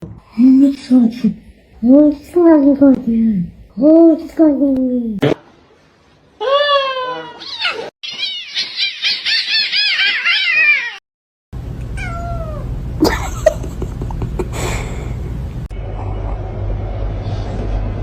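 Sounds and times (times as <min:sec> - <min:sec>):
cat meowing: 0:06.4 - 0:11.0, 0:12.0 - 0:12.7
steady low hum: 0:11.6 - 0:18.0.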